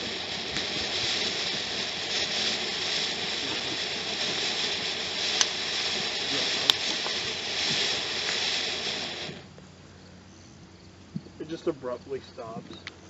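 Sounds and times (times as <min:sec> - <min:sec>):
firework popping: 0:00.0 - 0:09.6
ground firework hissing: 0:00.0 - 0:09.6.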